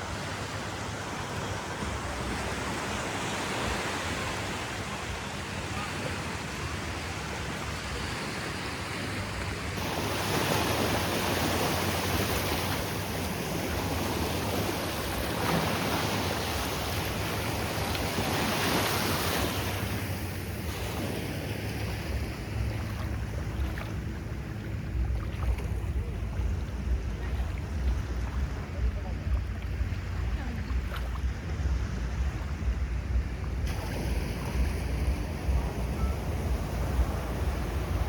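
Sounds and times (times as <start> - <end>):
sea waves breaking: 0.0 - 38.0
low rumble: 21.8 - 38.0.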